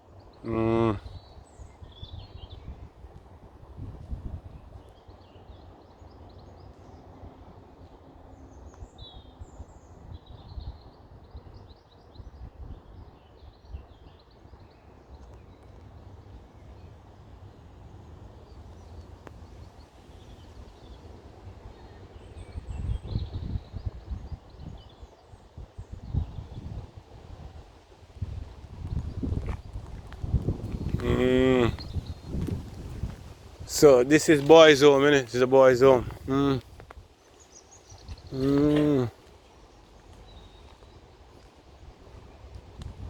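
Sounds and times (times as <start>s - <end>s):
songbirds chirping: 0.0s - 43.0s
wind rumble on microphone: 1.1s - 5.0s, 8.9s - 14.3s, 21.7s - 33.8s, 40.4s - 43.0s.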